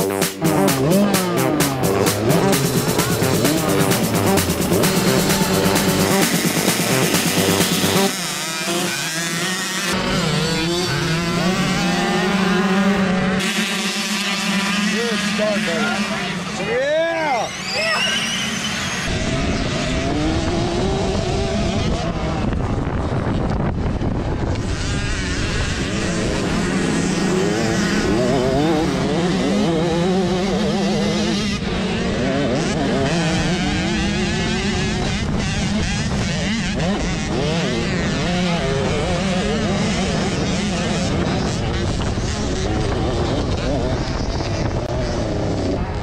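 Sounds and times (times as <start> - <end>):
rhythmic music: 0.0 - 8.1
dirt bike engines revving: 0.0 - 46.0.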